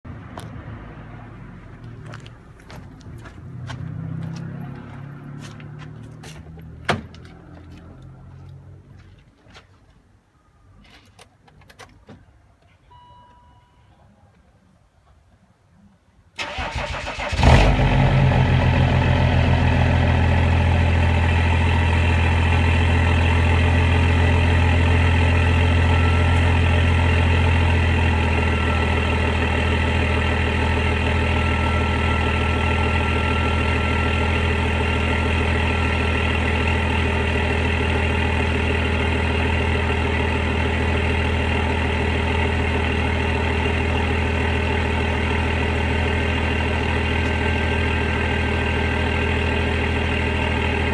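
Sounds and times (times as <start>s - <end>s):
diesel engine cranking: 16.4s - 50.9s
diesel engine idling: 16.4s - 50.9s.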